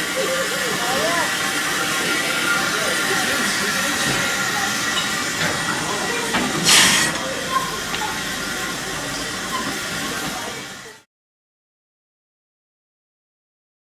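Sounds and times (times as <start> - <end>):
steam locomotive hiss: 0.0 - 11.0
short blast of steam: 5.9 - 10.2.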